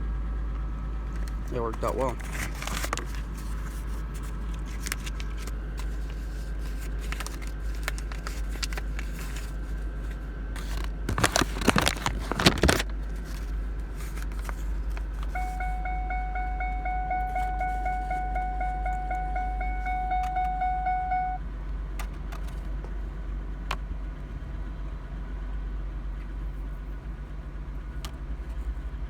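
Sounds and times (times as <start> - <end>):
electronic warning chime: 15.4 - 21.4.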